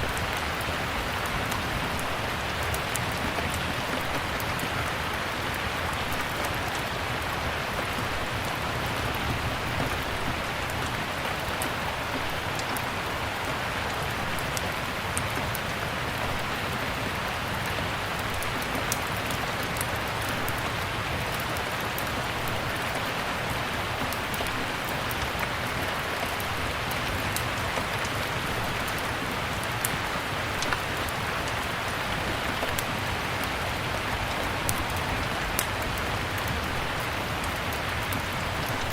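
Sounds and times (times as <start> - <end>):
steady rain falling: 0.0 - 38.9
wood fire crackling: 26.0 - 38.9.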